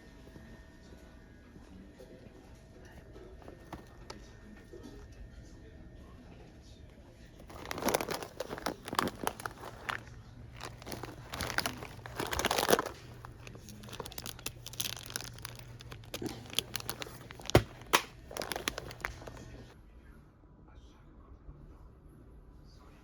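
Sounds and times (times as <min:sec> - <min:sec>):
packaging crinkling and rustling: 0:03.4 - 0:04.2, 0:07.4 - 0:19.8
sharp crackles and snaps: 0:07.4 - 0:19.7.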